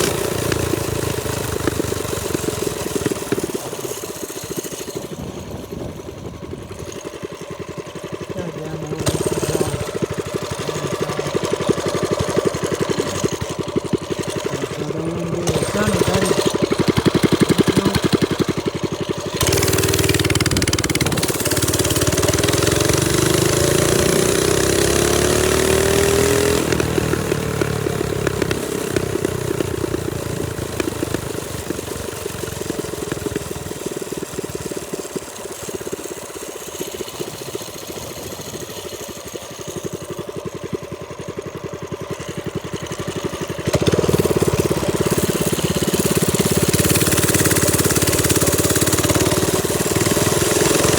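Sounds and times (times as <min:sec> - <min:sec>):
minibike engine running: 0:00.0 - 0:50.9
wind on microphone: 0:05.2 - 0:06.9.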